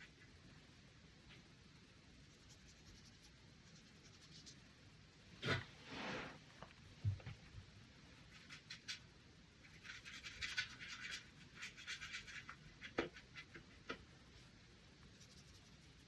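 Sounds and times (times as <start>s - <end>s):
brush strokes on paper: 5.8s - 6.5s.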